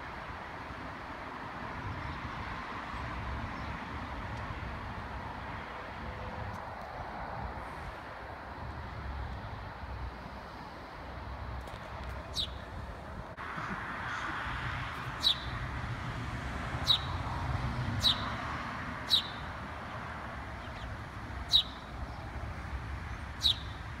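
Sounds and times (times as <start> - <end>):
steady background noise: 0.0 - 24.0
songbird chirping: 12.0 - 12.7, 16.8 - 17.1, 19.1 - 22.4, 23.1 - 23.8.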